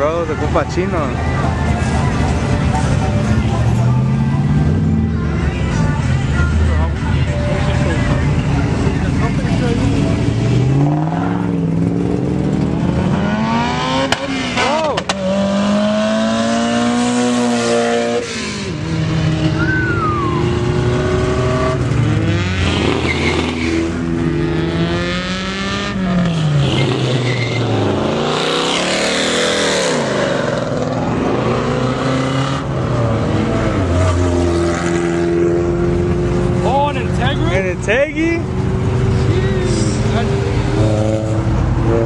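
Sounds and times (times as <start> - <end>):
car engines revving: 0.0 - 42.0
tire squeal: 19.5 - 20.8, 22.6 - 24.0, 26.2 - 28.0.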